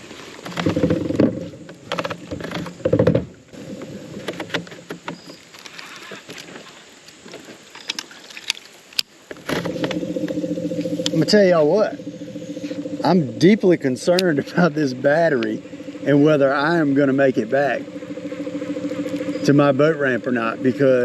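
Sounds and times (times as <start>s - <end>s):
handling clicks and knocks in boat: 0.0s - 12.0s, 14.0s - 14.6s
electric motor whirring: 9.5s - 21.0s.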